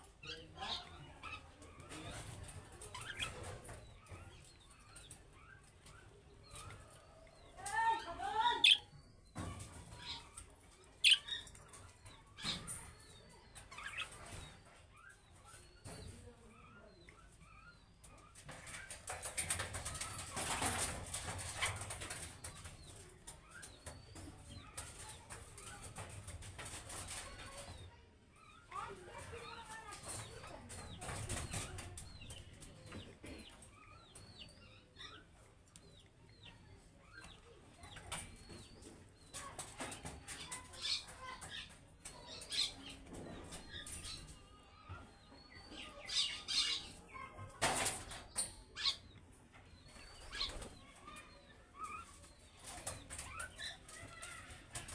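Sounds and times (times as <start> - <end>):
budgerigars chirping: 8.6 - 8.9, 11.0 - 11.8
rustling and clicking: 18.0 - 27.9.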